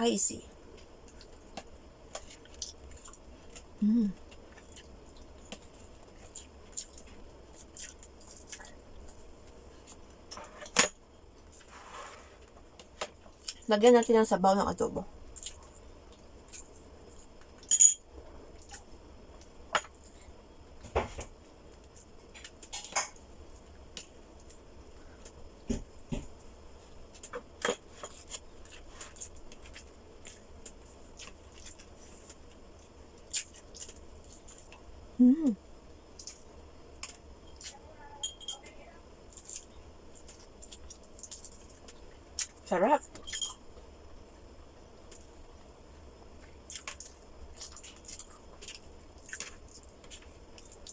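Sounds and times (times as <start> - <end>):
chewing with wet clicks and smacks: 0.8 - 10.0, 13.2 - 13.7, 15.3 - 17.6, 27.1 - 34.9, 36.1 - 37.8, 39.3 - 42.6, 46.4 - 50.9
eating clicks and smacks: 39.3 - 42.6.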